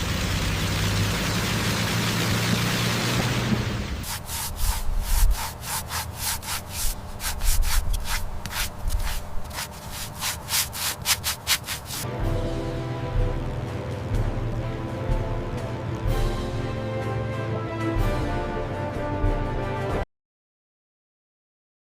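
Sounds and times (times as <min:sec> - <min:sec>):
hand sanding strokes: 0:04.0 - 0:12.1.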